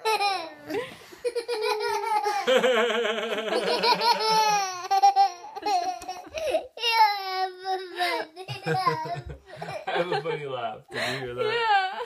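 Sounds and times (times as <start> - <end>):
young child laughing: 8.0 - 9.9.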